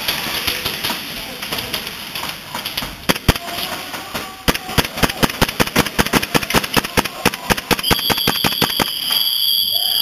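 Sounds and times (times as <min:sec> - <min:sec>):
airsoft guns firing: 0:03.0 - 0:09.1.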